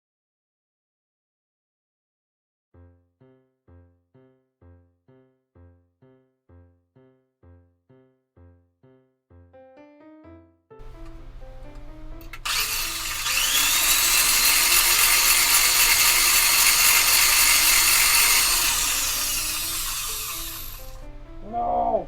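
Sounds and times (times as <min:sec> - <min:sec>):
quiet background music: 0:09.7 - 0:22.0
small power tool whining: 0:10.9 - 0:21.1.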